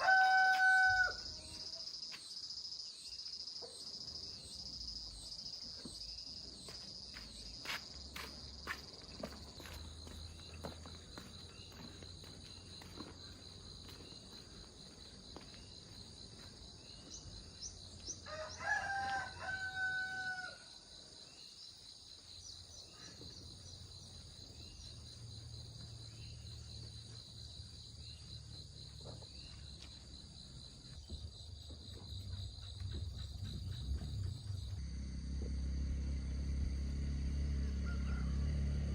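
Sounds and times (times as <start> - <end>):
rooster crowing: 0.0 - 1.5, 18.2 - 20.8, 37.6 - 38.9
insects droning: 0.0 - 38.9.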